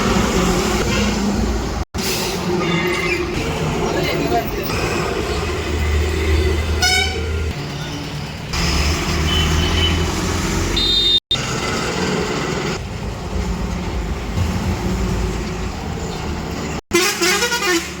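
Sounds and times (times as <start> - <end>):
truck engine humming: 3.2 - 16.8
truck horn toots: 6.8 - 7.5, 9.2 - 11.3, 16.9 - 18.0.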